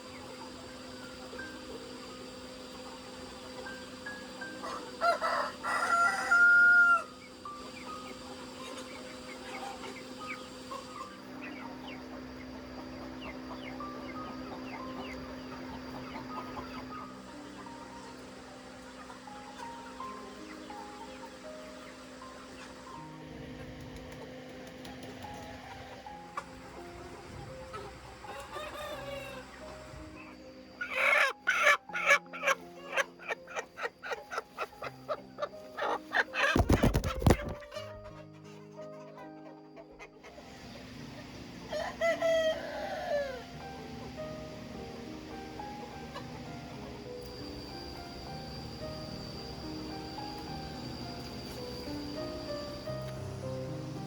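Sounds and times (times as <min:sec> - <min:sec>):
background music: 0:00.0 - 0:54.0
chickens clucking: 0:00.0 - 0:54.0
high falling peeps: 0:00.2 - 0:40.4.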